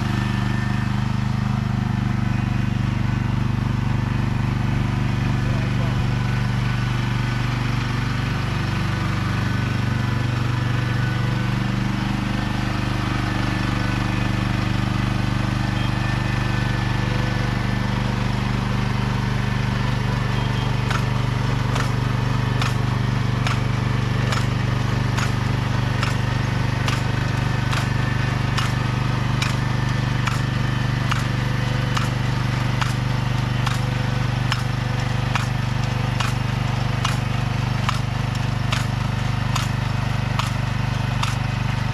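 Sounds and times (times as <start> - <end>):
small engine running: 0.0 - 41.9
regular mechanical click: 20.9 - 22.0, 22.6 - 23.6, 24.2 - 26.2, 26.8 - 27.9, 28.5 - 28.8, 29.4 - 32.2, 32.8 - 41.9.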